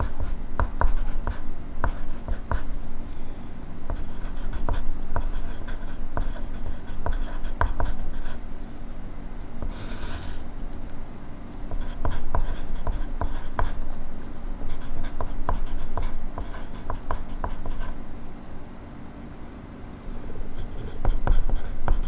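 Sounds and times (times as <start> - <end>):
pencil scratching on paper: 0.0 - 2.7, 3.9 - 8.4, 9.6 - 10.4, 11.7 - 13.9, 14.6 - 18.0, 20.5 - 22.0.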